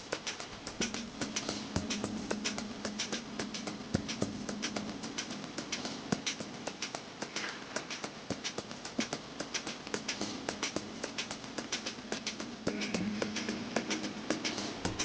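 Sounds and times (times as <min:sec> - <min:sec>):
rapid light tapping and clicking: 0:00.0 - 0:15.0.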